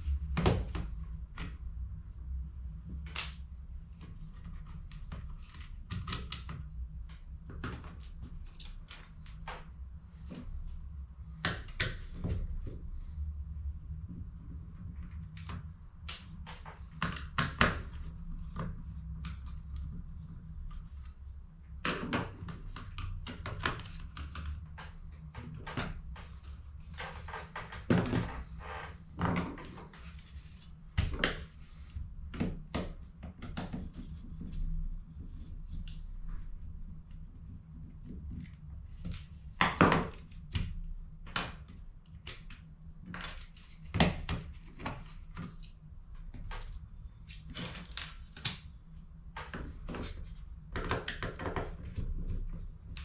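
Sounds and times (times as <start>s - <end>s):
plastic parts clicking and knocking: 49.4s - 52.1s.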